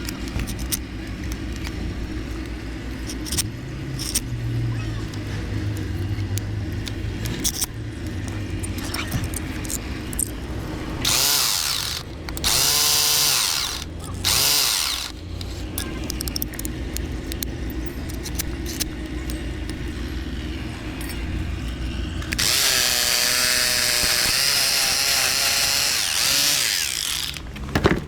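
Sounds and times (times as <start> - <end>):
low machine hum: 0.0 - 28.0
power tool motor spinning: 0.0 - 28.0
scattered clicks: 5.0 - 20.1.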